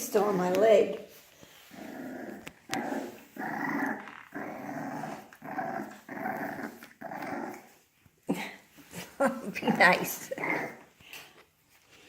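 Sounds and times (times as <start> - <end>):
puppy growling: 1.6 - 8.0, 9.5 - 11.0.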